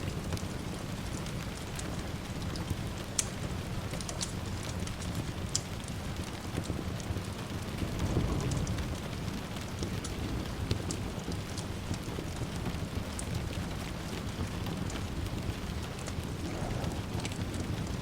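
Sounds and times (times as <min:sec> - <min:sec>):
steady rain: 0:00.0 - 0:18.0
wood fire crackling: 0:00.0 - 0:18.0
distant thunder rumbling: 0:07.8 - 0:09.2, 0:15.0 - 0:18.0.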